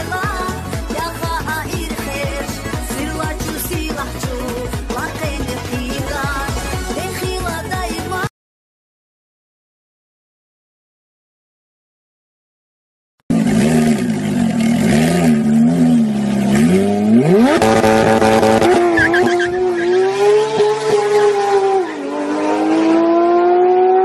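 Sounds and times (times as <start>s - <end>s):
car engine revving: 13.3s - 24.0s.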